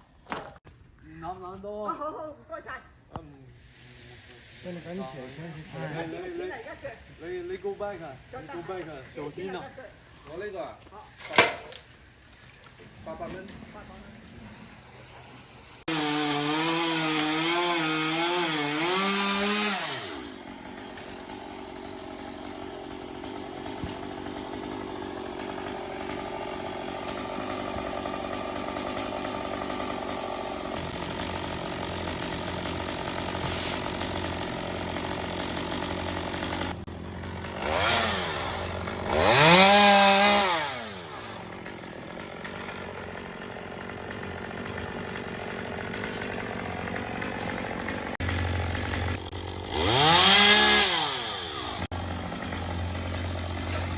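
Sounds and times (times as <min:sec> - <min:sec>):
chainsaw revving and idling: 0:13.4 - 0:53.9.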